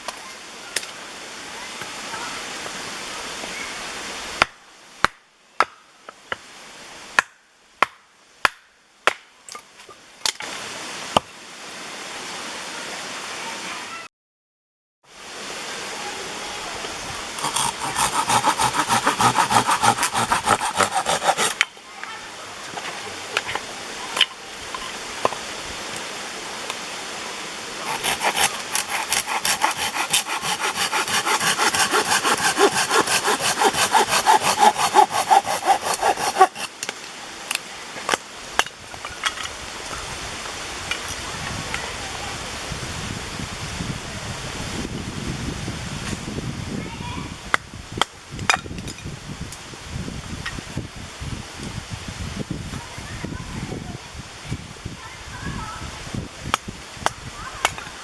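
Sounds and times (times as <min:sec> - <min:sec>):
hand saw cutting firewood: 0:17.3 - 0:21.7, 0:27.8 - 0:36.9
sharp wooden knocks: 0:17.4 - 0:21.6, 0:27.9 - 0:36.7.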